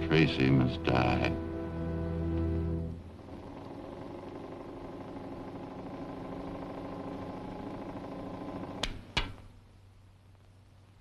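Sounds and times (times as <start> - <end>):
film soundtrack hiss: 0.0 - 11.0
mechanical hum: 0.0 - 11.0
sharp click: 8.8 - 9.5.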